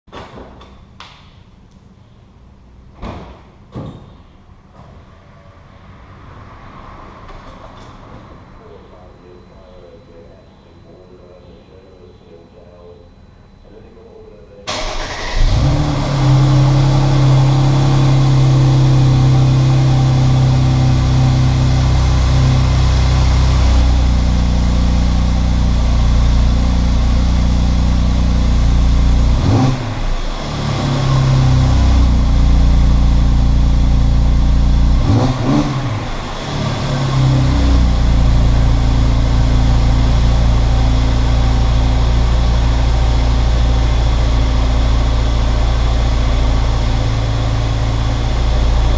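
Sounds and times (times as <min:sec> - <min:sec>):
car engine idling and revving: 0:05.1 - 0:08.8, 0:14.7 - 0:48.9.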